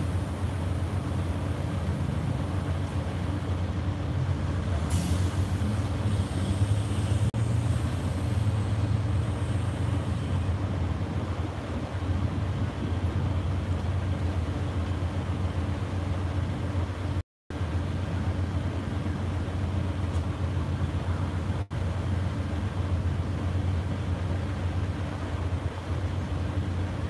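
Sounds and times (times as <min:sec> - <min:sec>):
train idling hum: 0:00.0 - 0:27.0.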